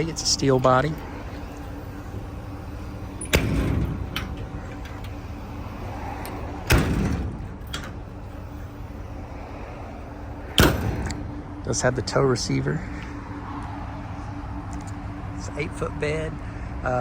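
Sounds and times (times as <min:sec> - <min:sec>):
metal doors banging shut: 0:01.1 - 0:11.2
latch clicks: 0:03.1 - 0:05.6, 0:06.2 - 0:08.1.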